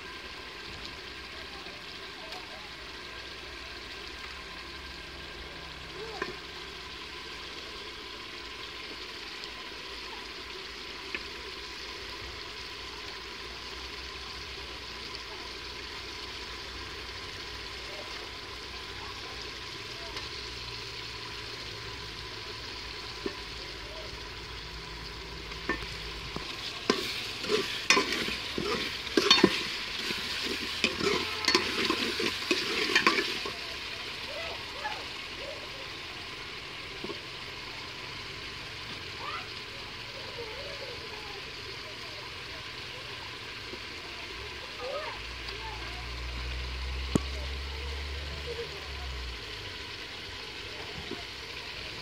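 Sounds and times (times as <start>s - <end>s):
vegetables sizzling in oil: 0.0s - 52.0s
metal spoon scraping a pot: 25.7s - 33.6s.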